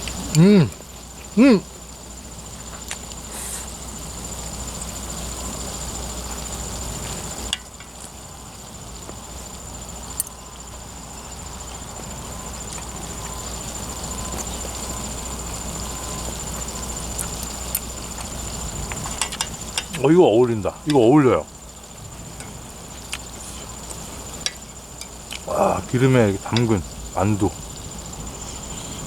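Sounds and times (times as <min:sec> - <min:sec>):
insect high trill: 0:00.0 - 0:29.0.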